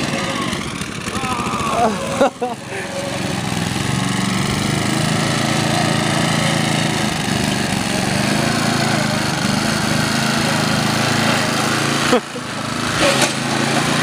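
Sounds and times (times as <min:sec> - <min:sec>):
lawn tractor engine running: 0:00.0 - 0:14.0.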